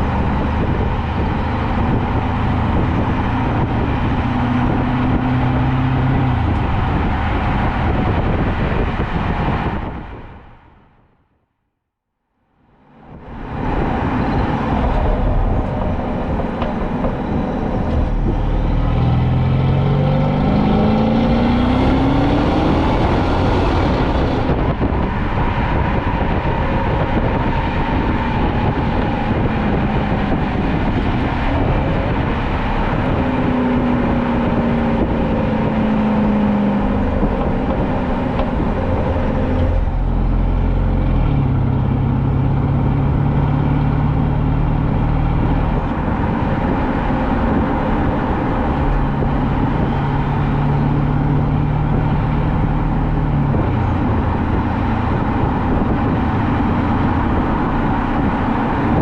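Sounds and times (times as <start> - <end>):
exhaust and road rumble: 0.0 - 59.0
car engine revving under power: 13.9 - 59.0.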